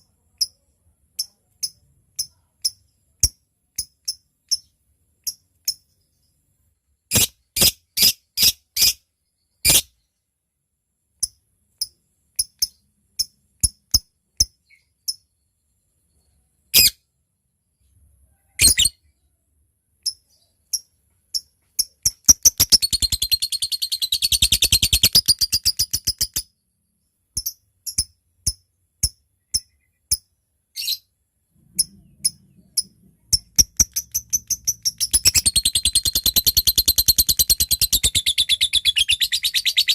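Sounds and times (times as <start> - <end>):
lovebird chattering trill: 18.6 - 18.9, 21.4 - 26.4, 31.8 - 39.9
lovebird ticking chips: 21.4 - 26.4, 32.2 - 39.7.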